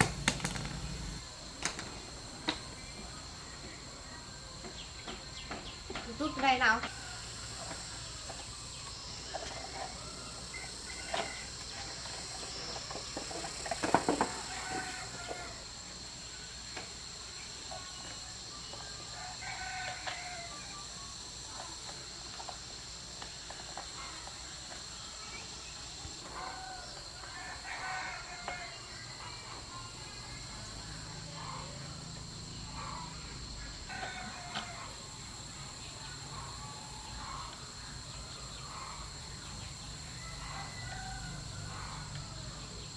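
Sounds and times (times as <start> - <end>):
insects droning: 0.0 - 42.9
loud rooster call: 14.2 - 15.7, 19.2 - 20.8, 26.3 - 29.2, 30.7 - 35.1, 40.1 - 42.9
chickens clucking: 23.3 - 41.0.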